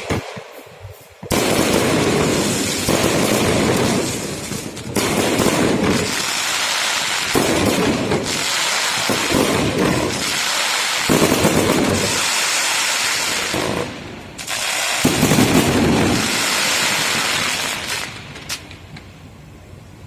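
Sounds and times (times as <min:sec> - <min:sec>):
fireworks bangs and crackling: 0:00.0 - 0:19.1.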